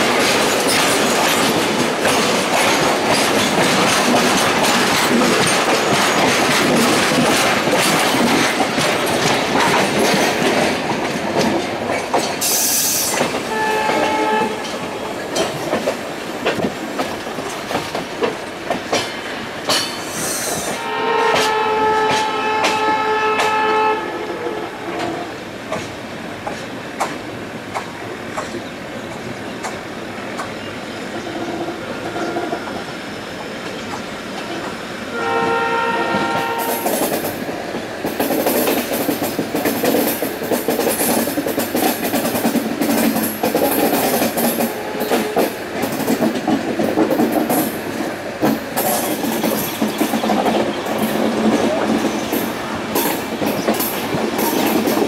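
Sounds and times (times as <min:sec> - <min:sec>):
train wheels clattering on rail: 0:00.0 - 0:23.9, 0:25.0 - 0:55.0
train horn blast: 0:13.5 - 0:14.8, 0:20.8 - 0:25.3, 0:35.1 - 0:36.9, 0:44.6 - 0:45.5.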